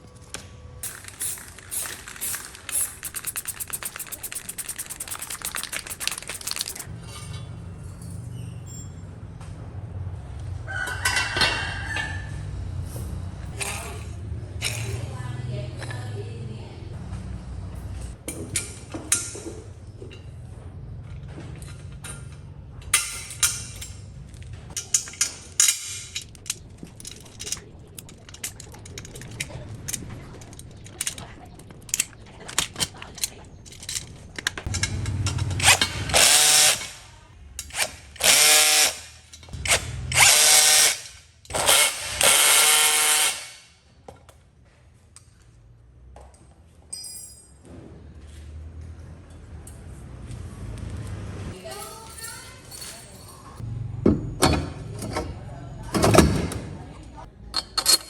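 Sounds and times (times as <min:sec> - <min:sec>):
sharp clicks and knocks: 0:00.8 - 0:06.9
power drill running: 0:38.2 - 0:39.0, 0:41.6 - 0:43.6.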